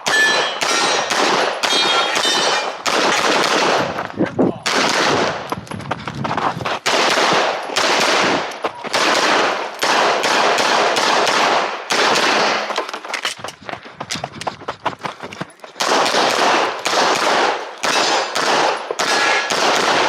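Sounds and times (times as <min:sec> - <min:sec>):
pistol gunshots: 0:00.0 - 0:04.0, 0:04.6 - 0:05.5, 0:06.8 - 0:12.8, 0:15.8 - 0:20.0.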